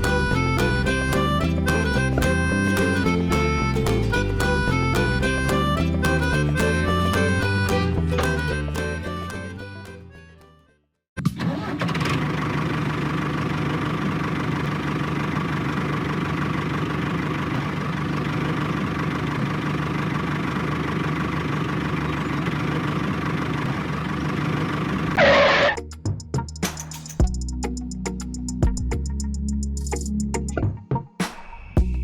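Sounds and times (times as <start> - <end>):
engine running steadily: 0.0 - 10.0, 11.9 - 25.8.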